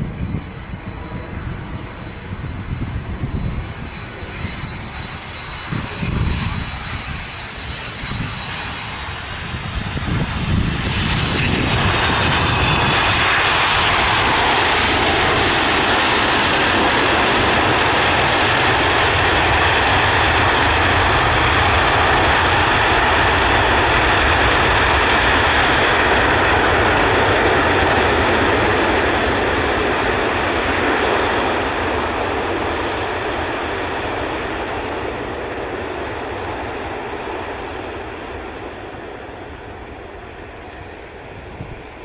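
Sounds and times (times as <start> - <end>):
faint high whine: 0.0 - 10.6, 36.7 - 42.0
jet engines roaring: 0.0 - 42.0.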